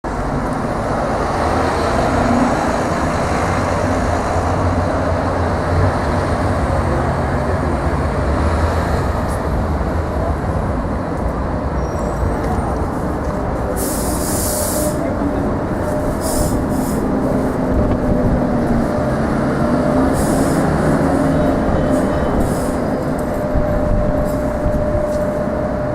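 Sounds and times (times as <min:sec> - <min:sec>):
tram and traffic rumble: 0:00.0 - 0:25.9
air hisses: 0:13.8 - 0:15.0, 0:20.1 - 0:20.8.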